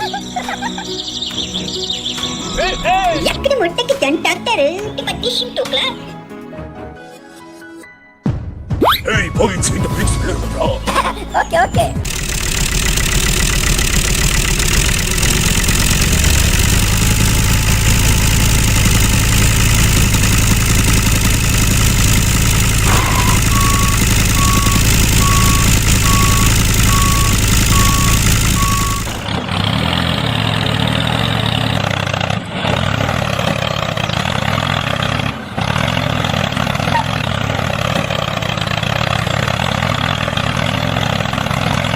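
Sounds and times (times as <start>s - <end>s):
truck engine running: 0.0s - 6.2s, 9.2s - 41.9s
reversing alarm beeping: 15.1s - 21.5s, 22.4s - 29.3s.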